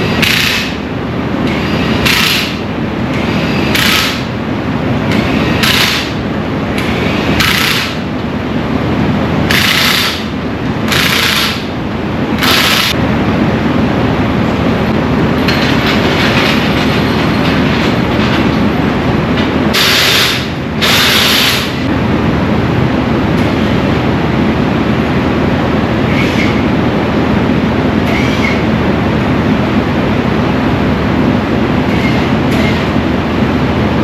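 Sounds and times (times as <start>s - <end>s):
loud hiss bursts: 19.7s - 21.8s.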